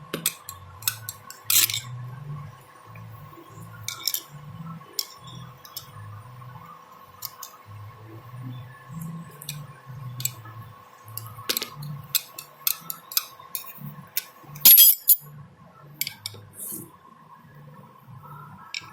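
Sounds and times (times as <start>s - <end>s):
metal tools clinking: 0.3s - 1.8s, 3.9s - 4.3s, 14.6s - 15.2s
metal clatter: 14.6s - 15.2s.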